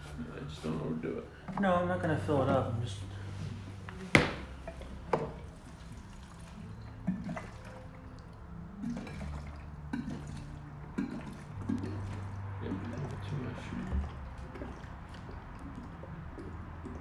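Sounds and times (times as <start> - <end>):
gasoline pouring into tank: 0.0 - 17.0
sharp knock: 4.2 - 4.5.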